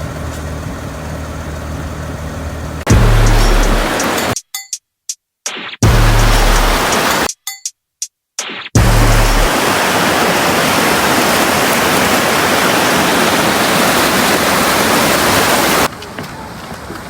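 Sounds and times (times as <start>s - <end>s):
loud rushing noise: 2.9s - 4.4s, 5.8s - 7.3s, 8.8s - 15.9s.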